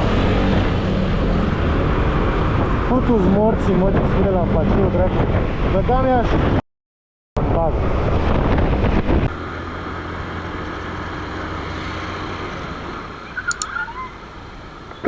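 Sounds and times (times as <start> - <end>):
wind rushing over microphone: 0.0 - 6.6, 7.4 - 9.5
motorcycle riding noise: 7.8 - 15.0
short clicks and chirps: 13.4 - 14.1.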